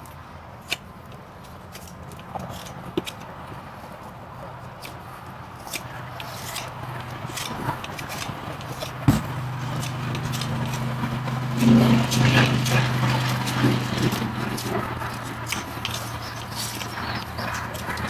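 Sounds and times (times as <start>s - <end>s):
hoof trimming scrapes and clicks: 0.0s - 18.0s
steady low hum: 6.8s - 18.0s
sharp knock: 9.1s - 10.0s.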